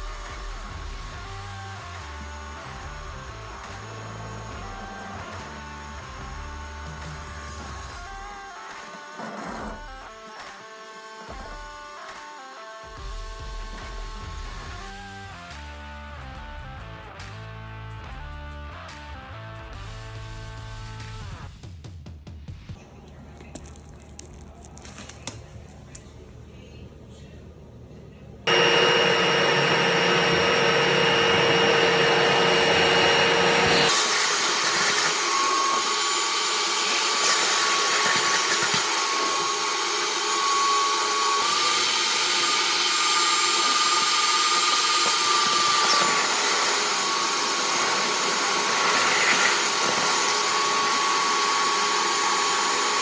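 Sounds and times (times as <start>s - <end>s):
electric motor whining: 28.5s - 53.0s.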